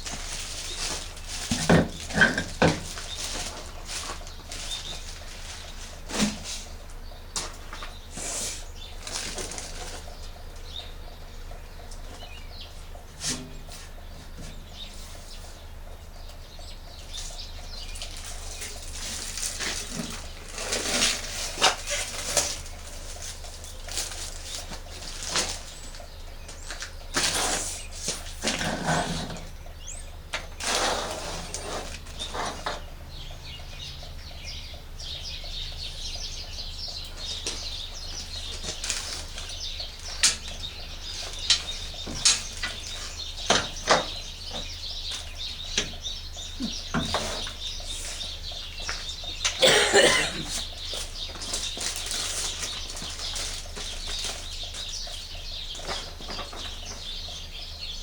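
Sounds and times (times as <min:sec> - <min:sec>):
packaging rustling: 0:18.0 - 0:26.0, 0:50.9 - 0:55.2.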